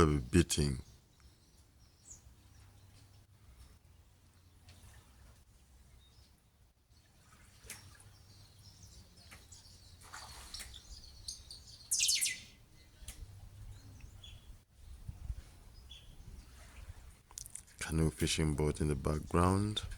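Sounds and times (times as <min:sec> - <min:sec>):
birds chirping: 0:00.0 - 0:03.2, 0:07.8 - 0:14.6, 0:17.8 - 0:19.8.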